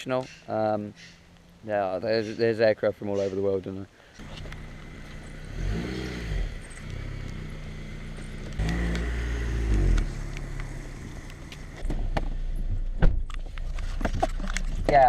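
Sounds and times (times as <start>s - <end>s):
car engine revving: 4.2s - 12.6s
low engine hum: 4.2s - 13.7s.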